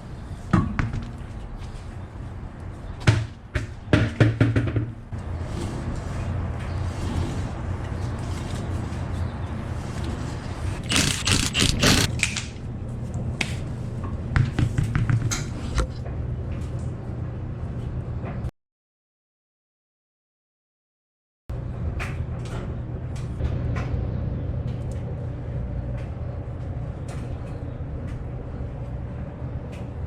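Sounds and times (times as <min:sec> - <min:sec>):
steady low hum: 0:00.0 - 0:04.0, 0:21.5 - 0:30.0.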